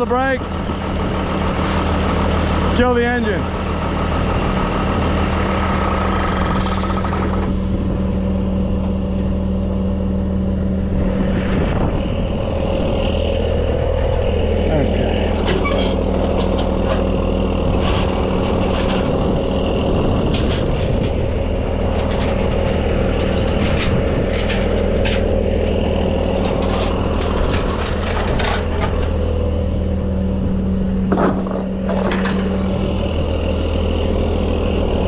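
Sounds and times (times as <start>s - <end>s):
diesel truck engine idling: 0.0s - 35.0s
metallic clinks and knocks: 31.0s - 32.6s.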